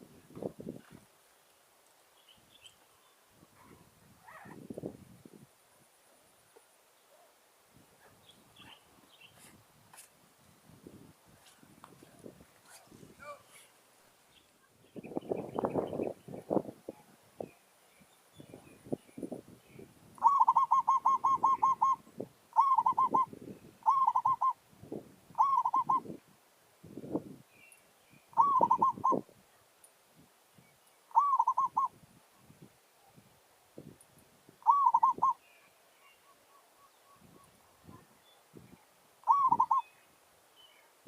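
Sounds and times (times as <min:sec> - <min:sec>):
doves cooing: 0:20.2 - 0:22.0, 0:22.6 - 0:24.6, 0:25.4 - 0:26.0, 0:28.4 - 0:29.2, 0:31.1 - 0:31.9, 0:34.6 - 0:35.4, 0:39.2 - 0:39.8.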